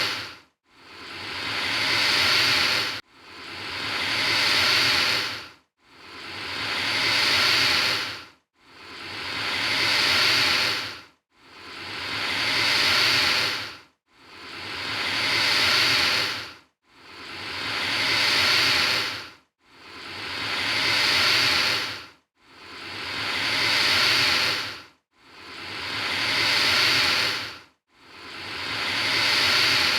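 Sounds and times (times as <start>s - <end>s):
alligator hissing: 0.0s - 0.3s, 0.9s - 5.4s, 6.2s - 11.0s, 11.7s - 13.7s, 14.4s - 16.5s, 17.1s - 19.2s, 19.9s - 22.0s, 22.7s - 24.8s, 25.4s - 27.6s, 28.2s - 29.9s.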